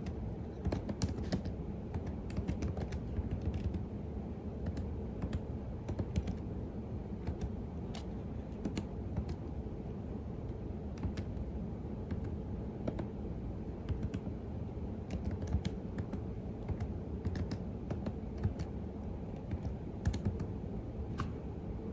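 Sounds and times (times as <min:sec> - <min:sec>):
keyboard typing clicks: 0:00.0 - 0:03.9, 0:04.6 - 0:06.4, 0:07.2 - 0:09.4, 0:10.9 - 0:11.4, 0:12.0 - 0:13.2, 0:13.8 - 0:14.3, 0:15.0 - 0:20.6.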